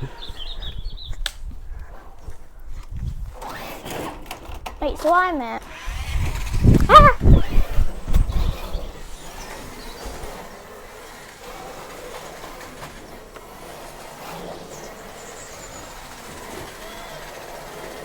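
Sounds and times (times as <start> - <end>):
toy car electric motors whirring: 3.2 - 18.0
tyres rattling over ground: 3.3 - 18.0.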